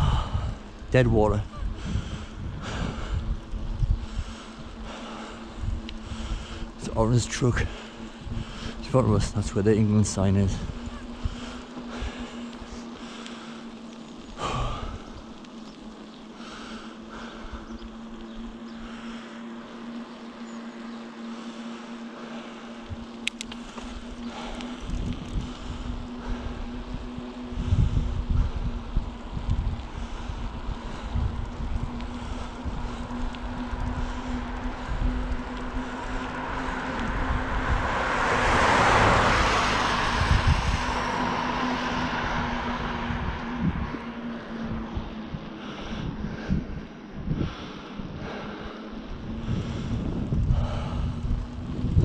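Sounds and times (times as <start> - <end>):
low mechanical hum: 0.0 - 52.0
vehicle passing by: 0.0 - 52.0
sharp clicks: 23.0 - 25.5.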